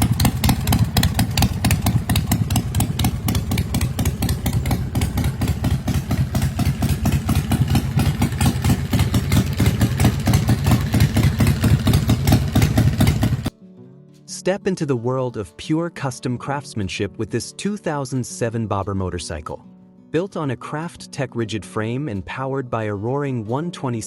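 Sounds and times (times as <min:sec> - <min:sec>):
motorcycle engine idling: 0:00.0 - 0:13.5.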